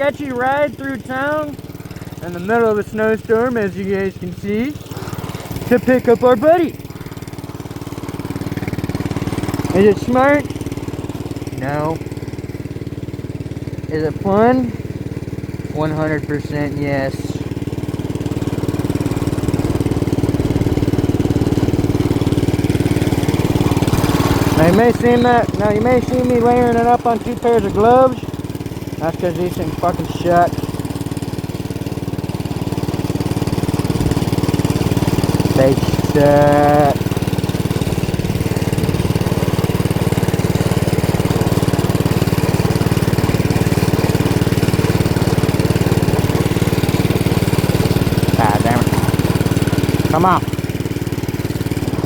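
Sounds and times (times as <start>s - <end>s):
small engine idling: 0.0s - 52.0s.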